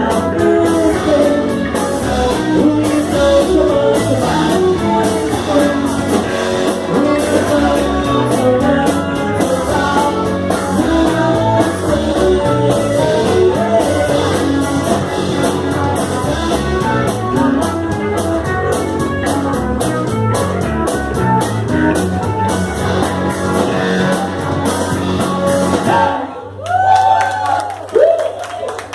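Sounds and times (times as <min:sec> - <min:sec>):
person singing: 0:00.0 - 0:18.1
drum kit beat: 0:00.0 - 0:26.2
electric guitar: 0:00.0 - 0:26.6.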